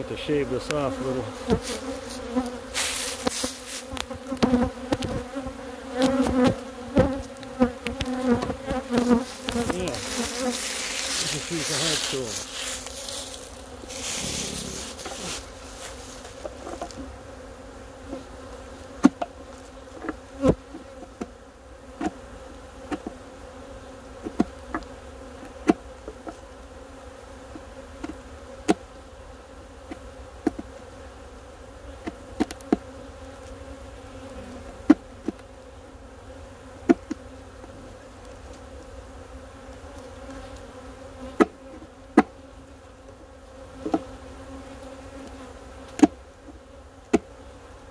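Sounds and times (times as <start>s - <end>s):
honeybees humming: 0.0s - 47.9s
tool knocking on wooden hive: 6.0s - 7.2s, 7.8s - 10.5s.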